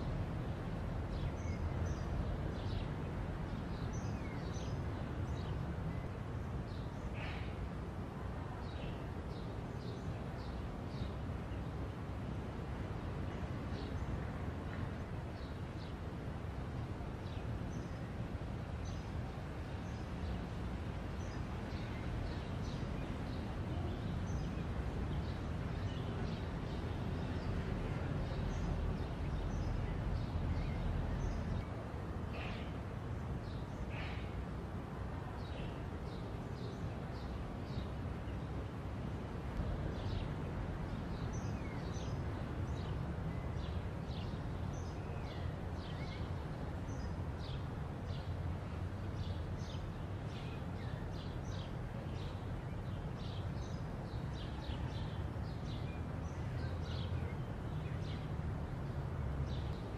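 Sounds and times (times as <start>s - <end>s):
small birds chirping: 0.0s - 7.8s, 16.9s - 34.6s, 39.3s - 59.9s.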